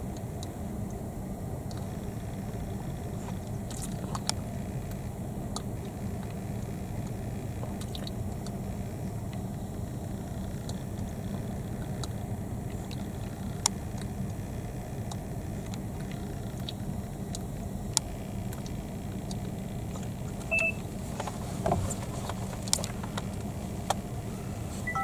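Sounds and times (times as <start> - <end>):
car idling hum: 0.0 - 25.0
short beep: 20.5 - 20.8.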